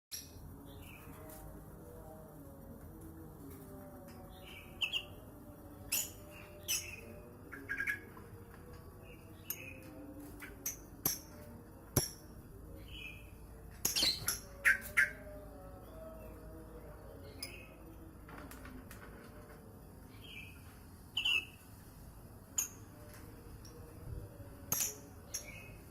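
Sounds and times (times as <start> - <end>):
bird chirping: 4.1 - 8.4, 9.0 - 11.3, 12.0 - 18.1, 20.0 - 21.8, 24.7 - 25.9.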